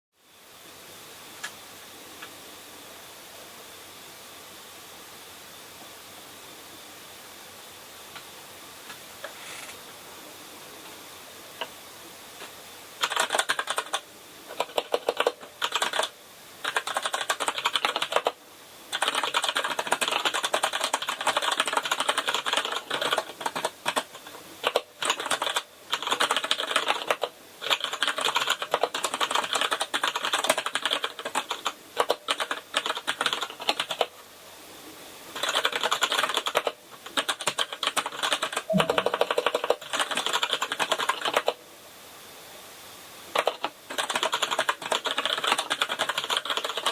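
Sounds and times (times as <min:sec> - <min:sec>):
mechanical keyboard typing: 0:13.0 - 0:34.1, 0:35.4 - 0:41.6, 0:43.3 - 0:46.9.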